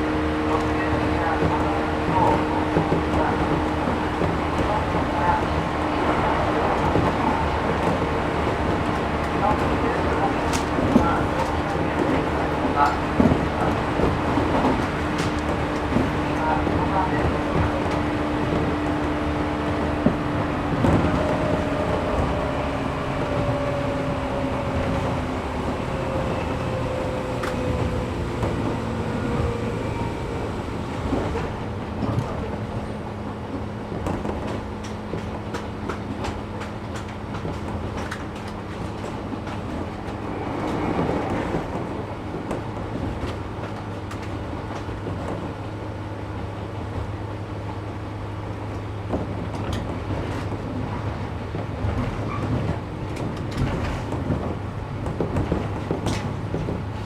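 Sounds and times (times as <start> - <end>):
train motor and gear whine: 10.4 - 45.5.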